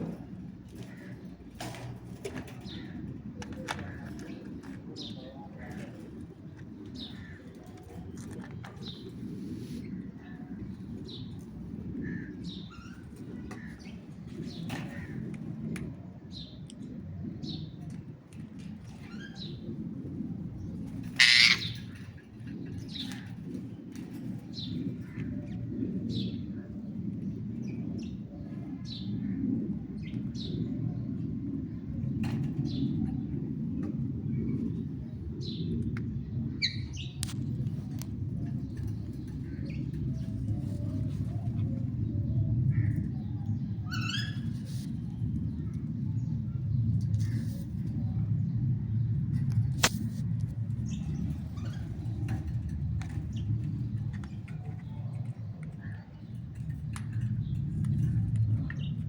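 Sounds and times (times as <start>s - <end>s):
steady low rumble: 0.0s - 59.0s
parrots chirping: 21.2s - 21.8s.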